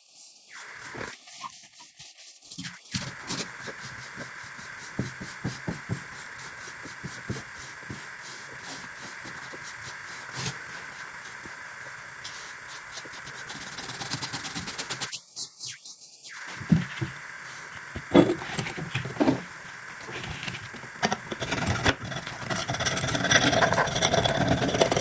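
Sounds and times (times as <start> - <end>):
rotary tool grinding steel: 21.0 - 25.0.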